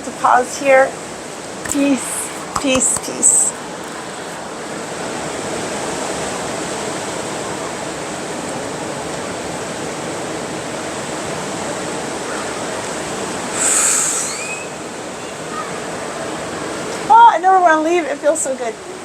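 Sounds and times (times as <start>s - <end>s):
ocean surf washing on beach: 0.0s - 19.0s
high-pitched hiss: 13.4s - 15.2s
brief rising chirps: 13.5s - 14.8s.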